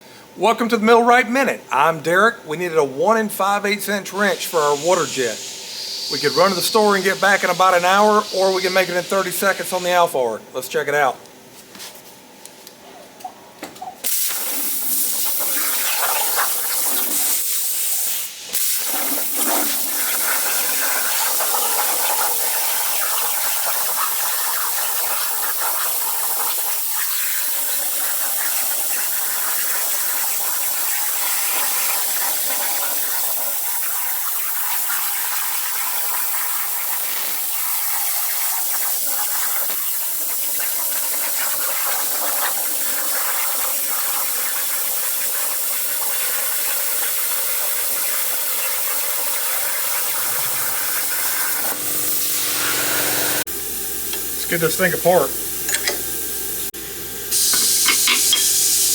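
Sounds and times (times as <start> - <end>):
plasma torch hissing: 4.1 - 10.1, 14.0 - 53.5, 57.3 - 58.9.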